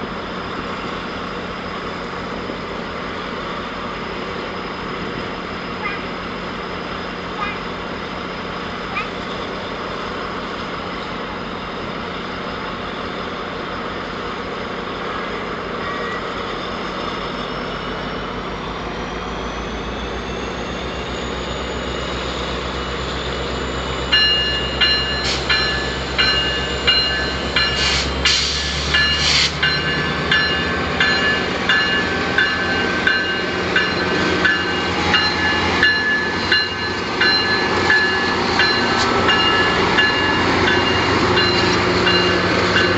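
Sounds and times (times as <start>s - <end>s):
diesel locomotive running: 0.0s - 42.9s
bell ringing: 24.1s - 27.9s, 28.9s - 42.9s.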